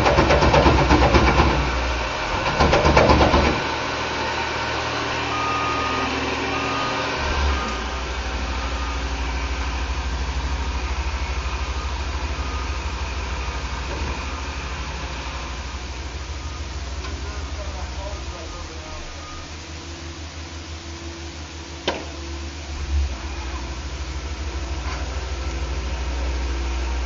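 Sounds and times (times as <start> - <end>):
heavy diesel engines rumbling: 0.0 - 27.0
faint short beeps: 5.3 - 7.9, 19.1 - 19.6.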